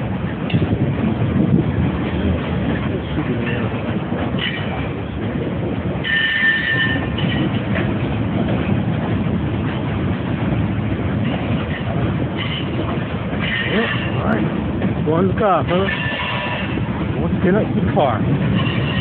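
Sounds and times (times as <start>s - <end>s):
train wheels rumbling and clattering: 0.0s - 19.0s
high-pitched wheel squeal: 6.0s - 7.5s.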